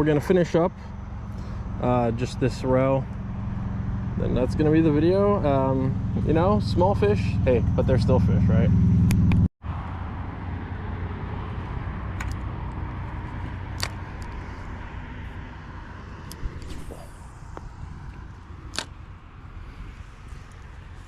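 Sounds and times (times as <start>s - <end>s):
low rumble: 11.8s - 21.0s
sharp clicks: 13.8s - 14.4s, 17.5s - 19.0s.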